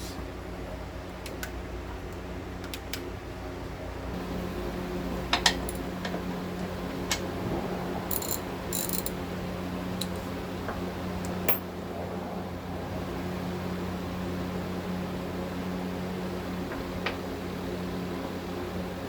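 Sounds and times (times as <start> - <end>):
low shop hum: 0.0 - 19.0
metallic clinks: 8.1 - 9.2
ratchet clicking: 8.1 - 9.2.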